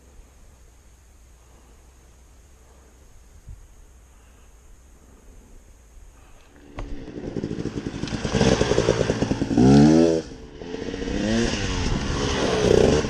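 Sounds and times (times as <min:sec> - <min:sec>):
dirt bike engine revving: 0:06.6 - 0:13.0.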